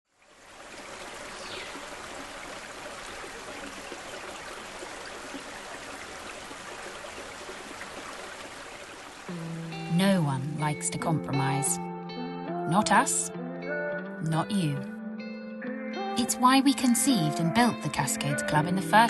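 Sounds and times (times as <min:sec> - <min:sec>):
flowing water: 0:00.1 - 0:11.2.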